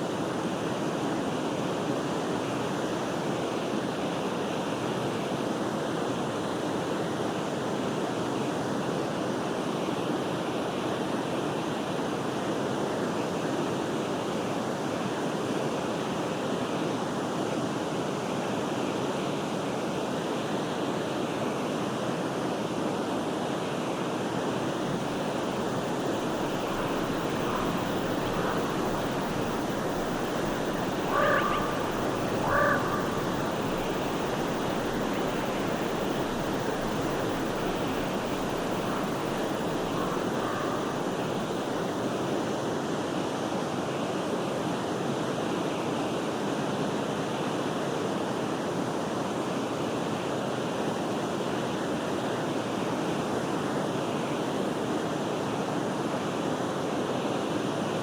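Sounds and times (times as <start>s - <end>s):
forest stream rushing: 0.0s - 58.0s
bird calls: 25.1s - 41.6s.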